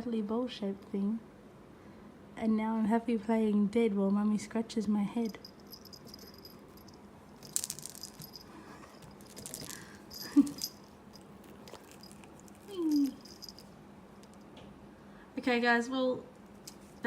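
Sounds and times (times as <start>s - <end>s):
rattle ball toy rattling: 5.2s - 14.4s.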